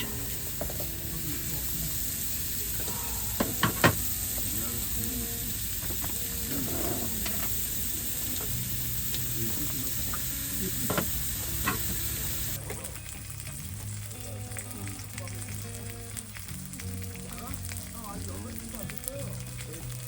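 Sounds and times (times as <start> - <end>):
meat sizzling in a pan: 0.0 - 20.0.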